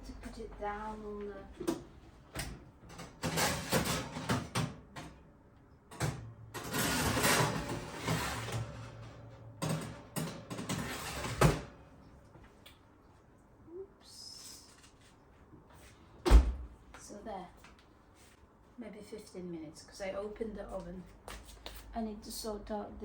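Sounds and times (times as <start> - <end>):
metal baking tray clattering: 3.0 - 4.7, 6.0 - 11.8.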